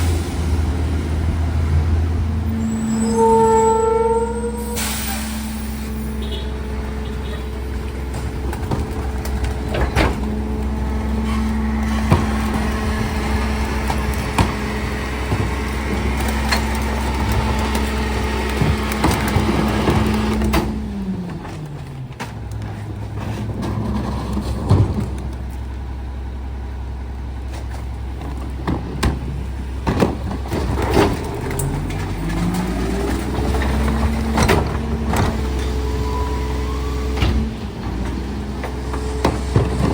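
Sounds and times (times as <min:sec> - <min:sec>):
garbage truck engine revving: 0:00.0 - 0:39.9
trash knocking and cracking: 0:07.4 - 0:25.7, 0:27.4 - 0:36.0, 0:37.1 - 0:39.9.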